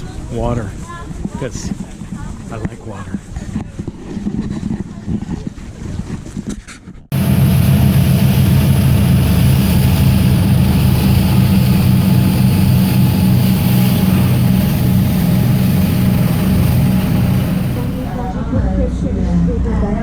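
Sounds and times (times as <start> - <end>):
engine droning steadily: 7.1 - 18.4.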